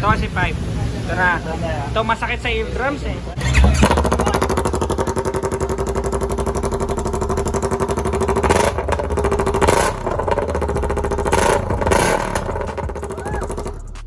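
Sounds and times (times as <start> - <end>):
motorcycle idling: 3.0 - 14.0
motorcycle throttle blips: 3.4 - 14.0.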